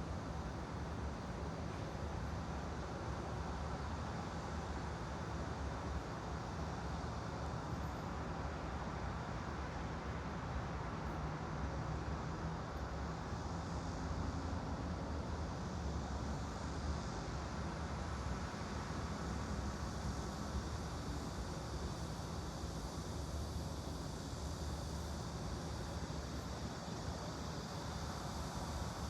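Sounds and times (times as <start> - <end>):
rumbling hiss: 12.0 - 29.0.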